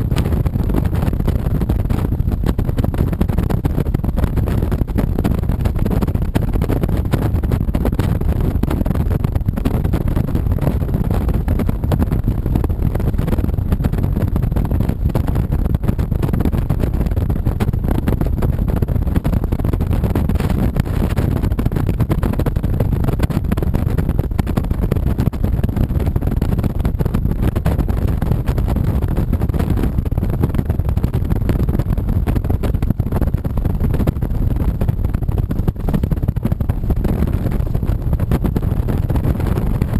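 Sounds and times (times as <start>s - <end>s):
wind and road noise: 0.0s - 39.9s
motorcycle engine running: 30.6s - 39.9s.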